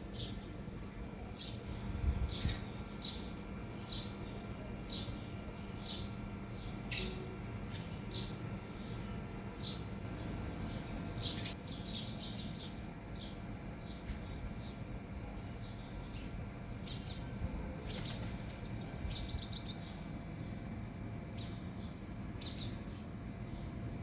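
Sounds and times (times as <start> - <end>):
small bird chirping: 9.6 - 20.6, 21.3 - 24.0.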